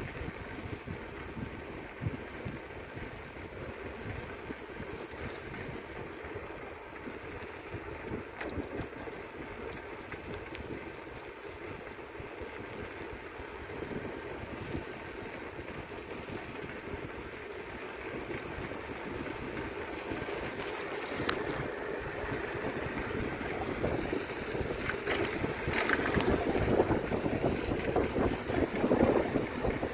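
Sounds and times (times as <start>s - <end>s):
bicycle rolling noise: 0.0s - 29.9s
wind: 0.0s - 29.9s.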